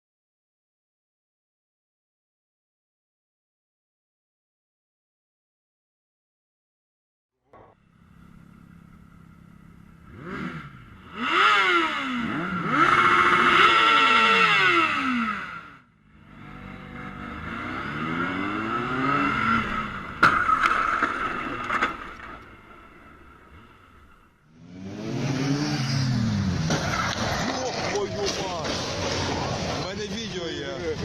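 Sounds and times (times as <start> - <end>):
vehicle engine accelerating: 7.5 - 31.0.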